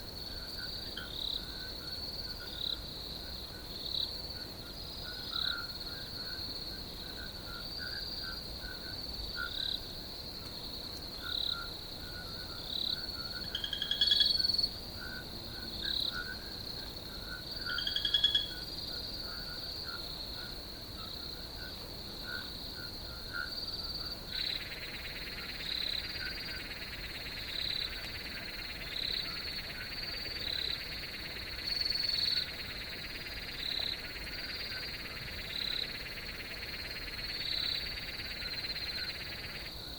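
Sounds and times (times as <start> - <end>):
cricket trill: 0.0 - 39.9
insect drone: 0.0 - 39.9
frogs calling: 3.5 - 6.4, 11.2 - 39.9.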